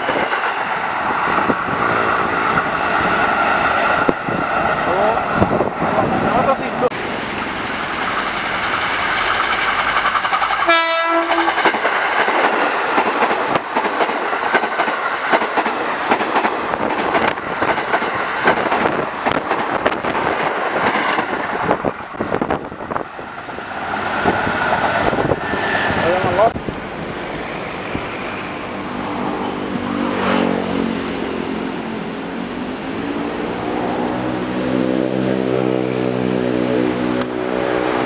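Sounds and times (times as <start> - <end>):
train rushing past: 0.0 - 38.0
train horn blast: 10.6 - 11.6.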